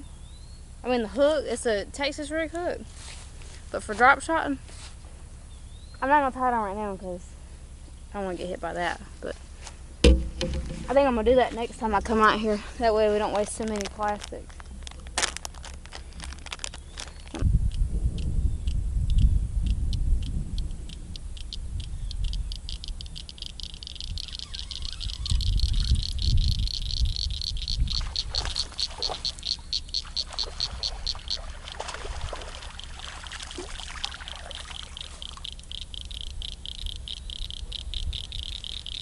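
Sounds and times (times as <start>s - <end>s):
rustling noises: 2.8s - 5.2s, 9.2s - 17.4s
wind rumbling on microphone: 10.0s - 39.0s
high-pitched pulsed animal call: 21.0s - 31.7s, 34.1s - 39.0s.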